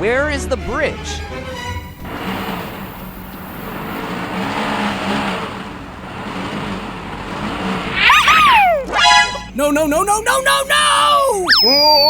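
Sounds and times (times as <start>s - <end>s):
toy vehicle engine hum: 0.0s - 12.0s
whistle-like sliding tone: 1.6s - 12.0s.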